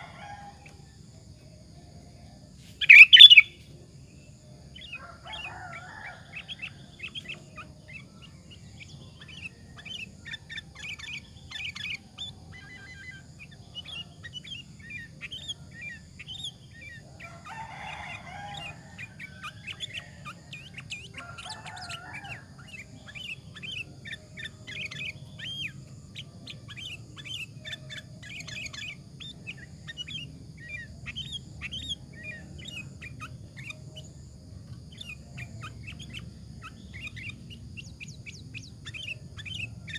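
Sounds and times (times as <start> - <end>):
low background hum: 0.0 - 39.9
bird singing chirpy phrases: 1.1 - 39.9
rough lower bird calls: 2.8 - 3.6.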